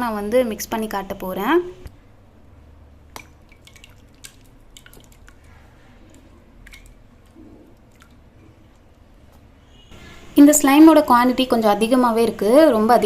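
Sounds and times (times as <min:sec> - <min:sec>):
slime clicking and squishing: 0:03.1 - 0:05.5.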